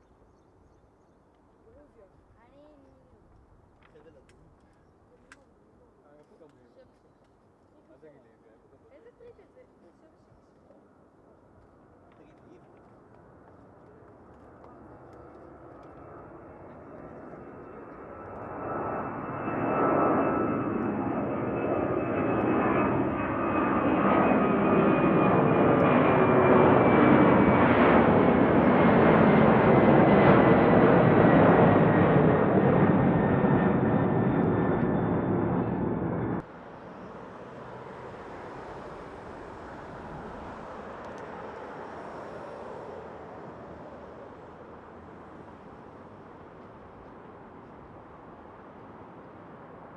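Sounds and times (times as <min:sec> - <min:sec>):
distant jet noise: 0:11.5 - 0:49.9
jet engines passing: 0:12.8 - 0:49.9.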